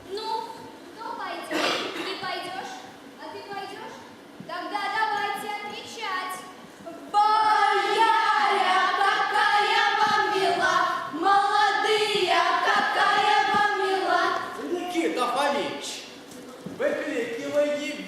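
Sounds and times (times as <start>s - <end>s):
choir of young voices singing: 7.2s - 14.7s.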